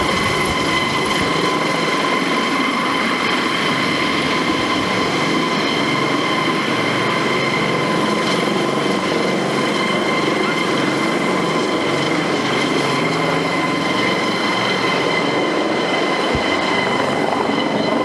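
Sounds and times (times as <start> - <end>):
helicopter rushing noise: 0.0 - 18.0
high-pitched turbine whine: 0.0 - 18.0.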